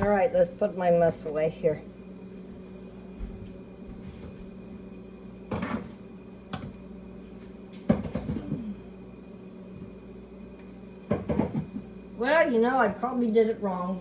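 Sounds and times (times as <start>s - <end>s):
low appliance hum: 0.0s - 14.0s
kitchen items knocking and clattering: 5.5s - 6.0s, 7.8s - 8.6s, 11.1s - 11.8s.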